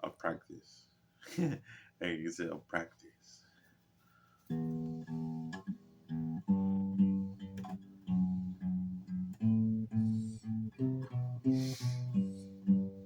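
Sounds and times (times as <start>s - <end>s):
guitar plucking single notes: 4.5s - 13.0s.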